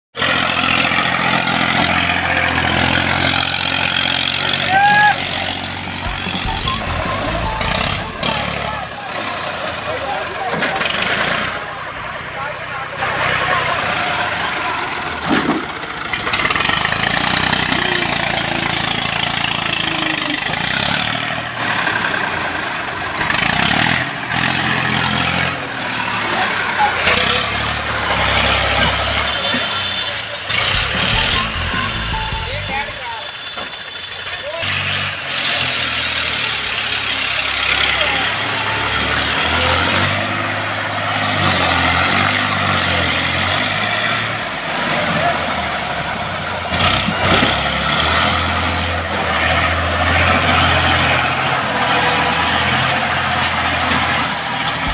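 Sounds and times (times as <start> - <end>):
tractor engine running: 0.2 - 54.9.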